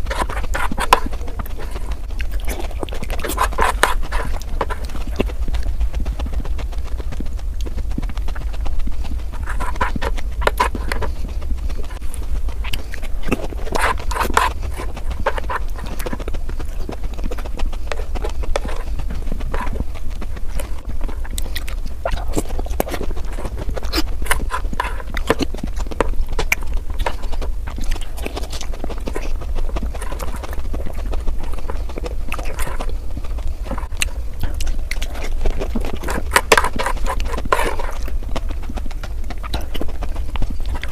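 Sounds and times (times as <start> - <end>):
fast crunching and chewing: 0.0 - 40.9
steady low hum: 0.0 - 40.9.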